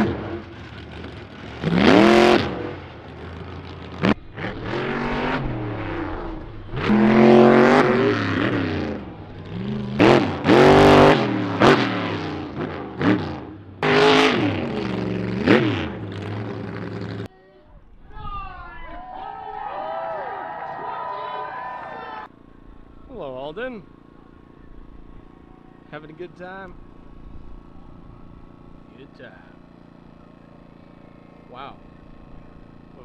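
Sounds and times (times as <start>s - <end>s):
truck engine revving: 0.0s - 17.3s.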